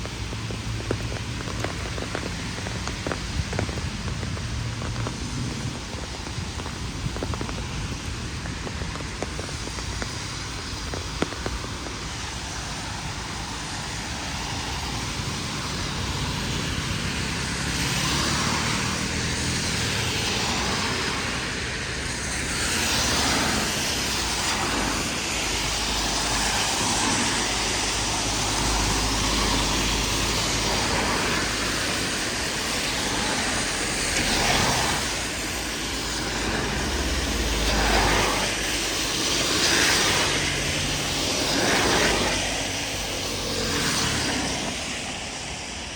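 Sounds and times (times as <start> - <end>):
deep rumbles: 0.0 - 12.4
heavy rain on street: 0.0 - 45.9
vehicles passing on wet road: 0.0 - 45.9.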